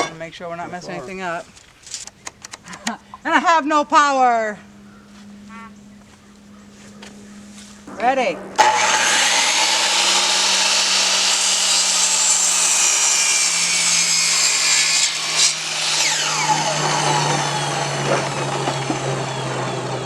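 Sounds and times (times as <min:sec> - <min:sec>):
power saw cutting wood: 0:08.6 - 0:20.0.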